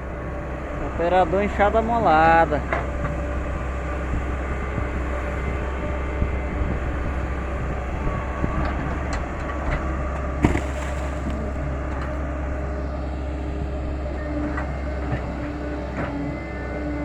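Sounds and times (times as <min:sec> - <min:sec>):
excavator engine rumbling: 0:00.0 - 0:17.0.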